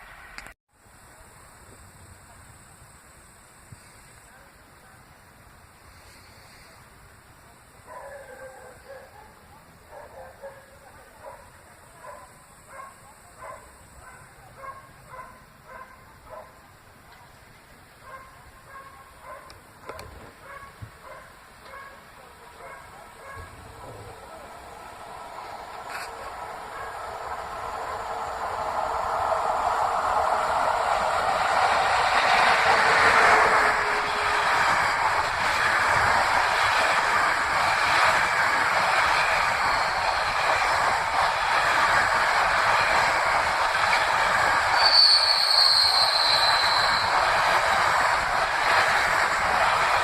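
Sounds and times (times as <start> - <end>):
train approaching: 0.0 - 50.0
dog barking: 7.9 - 16.6, 18.0 - 24.2, 26.0 - 27.1.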